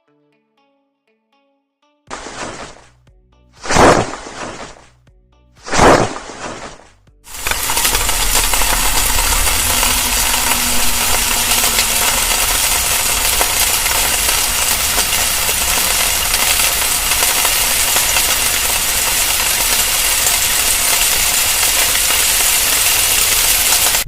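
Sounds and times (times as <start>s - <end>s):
sandwich sizzling on hot surface: 2.1s - 2.8s, 7.3s - 24.0s.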